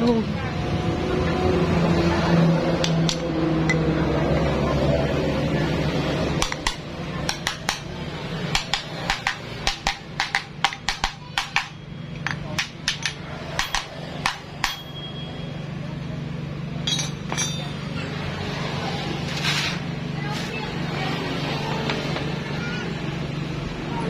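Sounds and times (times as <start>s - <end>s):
tools tapping metal engine parts: 2.8s - 3.9s, 6.4s - 15.3s, 16.8s - 18.0s.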